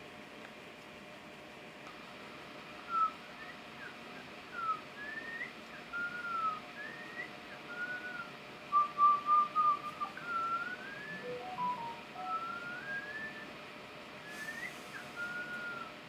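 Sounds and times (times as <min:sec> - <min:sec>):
person whistling a slow melody: 0:04.5 - 0:13.5, 0:14.4 - 0:15.9.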